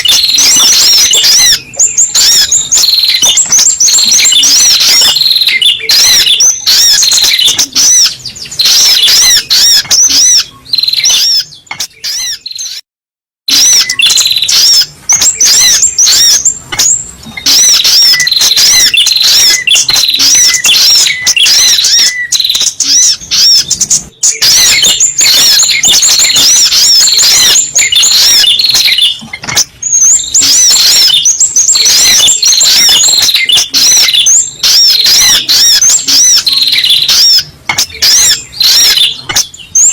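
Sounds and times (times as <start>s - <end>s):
bird high looping chirps: 0.0s - 12.9s, 13.5s - 39.9s.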